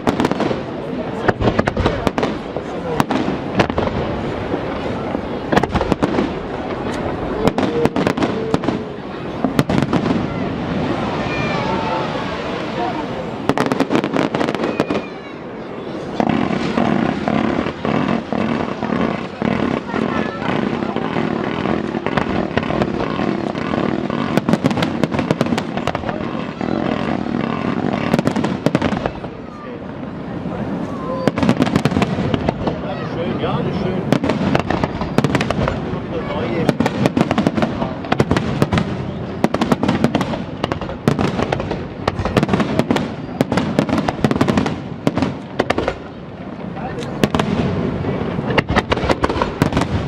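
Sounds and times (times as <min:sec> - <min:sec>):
rapid firework cracks: 0:00.0 - 0:15.4, 0:16.0 - 0:29.5, 0:30.8 - 0:32.9, 0:34.0 - 0:46.2, 0:47.0 - 0:50.0
firework bangs: 0:00.0 - 0:50.0
rumbling wash of noise: 0:00.0 - 0:50.0.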